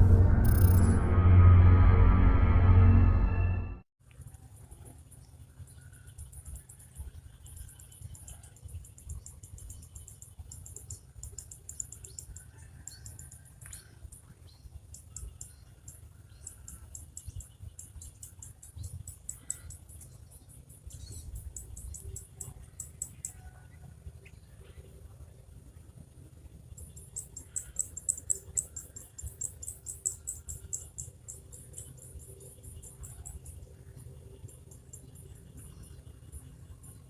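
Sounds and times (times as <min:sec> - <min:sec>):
birds and insects chirping: 0:00.0 - 0:01.2, 0:04.8 - 0:37.0
steady low rumble: 0:00.0 - 0:03.9.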